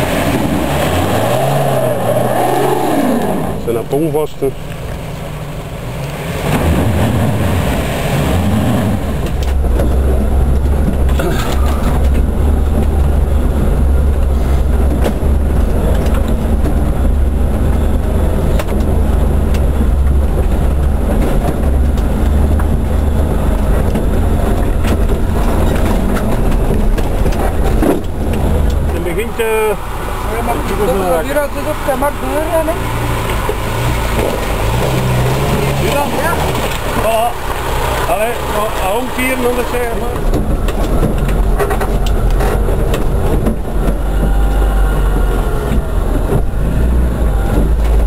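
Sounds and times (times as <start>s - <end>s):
engine drone while driving: 0.0s - 48.0s.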